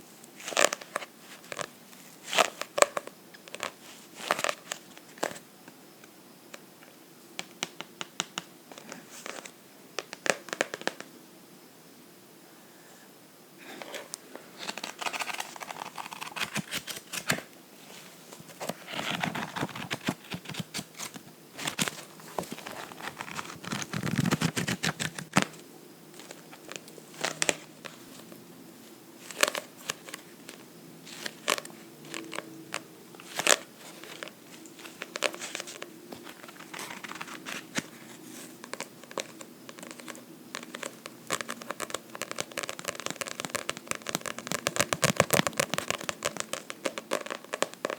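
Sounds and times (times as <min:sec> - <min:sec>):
scratching and rustling on book: 0:00.4 - 0:05.4, 0:13.7 - 0:47.9
tapping on book: 0:07.4 - 0:09.0.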